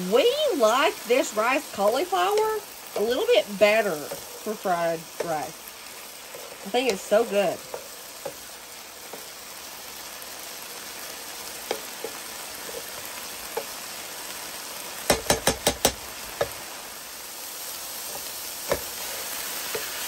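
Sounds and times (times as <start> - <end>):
food sizzling in a skillet: 0.0 - 20.0
spatula stirring food: 0.2 - 16.8, 17.4 - 20.0
spatula knocking against pan: 15.1 - 16.6.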